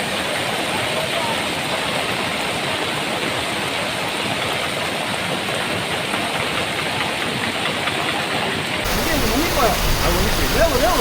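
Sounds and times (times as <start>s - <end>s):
floodwater rushing: 8.8s - 11.0s.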